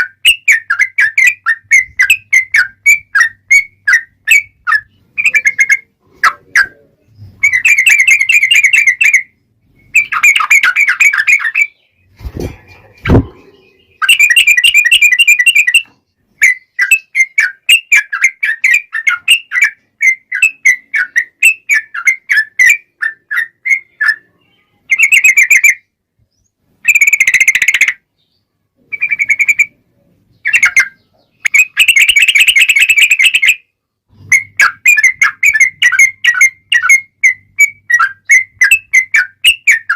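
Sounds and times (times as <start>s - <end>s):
bird chattering song: 0.0s - 39.9s
low thumps: 12.1s - 13.6s.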